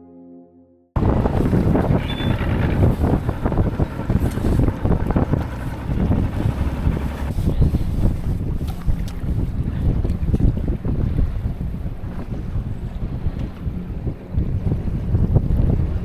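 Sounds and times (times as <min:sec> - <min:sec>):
soft sustained music tones: 0:00.0 - 0:00.9
water rushing: 0:01.0 - 0:11.2
boat motor: 0:01.0 - 0:16.0
wind buffeting microphone: 0:01.0 - 0:16.0.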